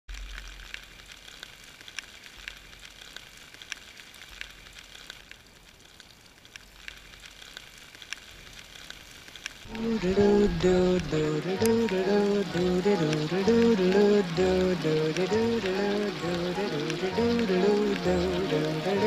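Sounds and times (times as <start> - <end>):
rain hissing on flooded street: 0.1 - 19.0
drops ticking into water: 9.4 - 19.0.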